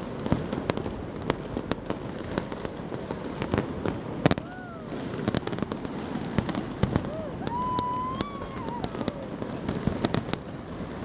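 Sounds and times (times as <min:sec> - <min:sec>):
rumble of distant firework bursts: 0:00.0 - 0:11.0.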